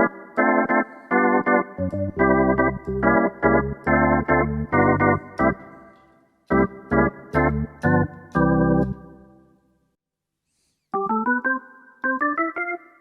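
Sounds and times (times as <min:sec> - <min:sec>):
organ chords on keyboard: 0:00.0 - 0:09.6, 0:11.0 - 0:13.0
bass line: 0:01.8 - 0:05.6, 0:06.5 - 0:09.1.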